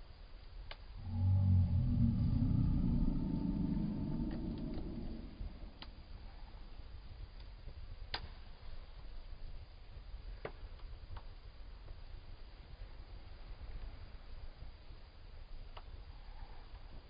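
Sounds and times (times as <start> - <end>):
low rumble: 1.0 - 6.4.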